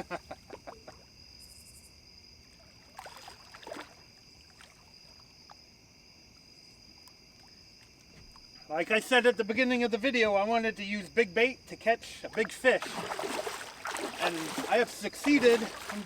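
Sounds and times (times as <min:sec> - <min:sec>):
insects trilling: 0:00.0 - 0:16.0
fish splashing in water: 0:02.8 - 0:04.9, 0:12.3 - 0:16.0.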